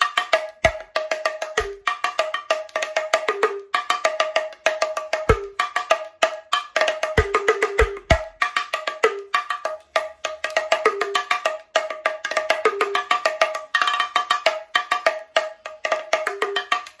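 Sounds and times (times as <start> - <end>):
drums playing fast rhythm: 0.6 - 1.8, 5.2 - 5.6, 7.0 - 8.4.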